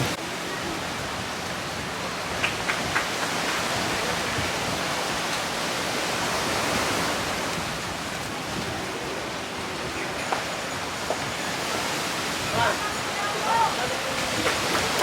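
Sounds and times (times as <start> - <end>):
wind and water rushing: 0.0 - 15.0.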